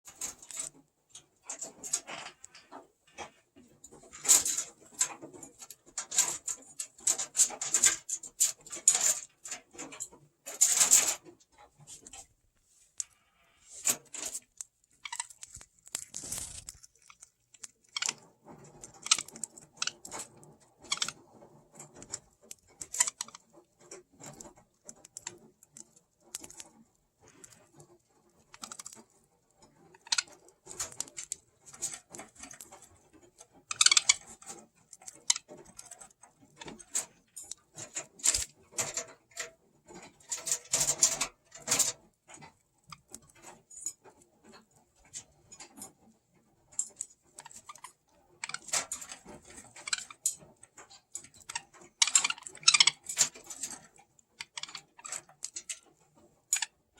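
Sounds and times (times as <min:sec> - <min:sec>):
beaks crunching carrot: 0:13.0 - 0:21.2, 0:21.8 - 0:38.6, 0:47.3 - 0:53.8, 0:54.4 - 0:55.8.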